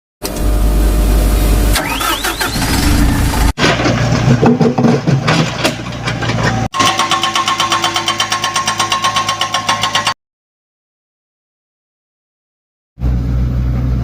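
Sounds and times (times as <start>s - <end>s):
diesel engines running: 0.2s - 7.2s, 13.0s - 14.0s.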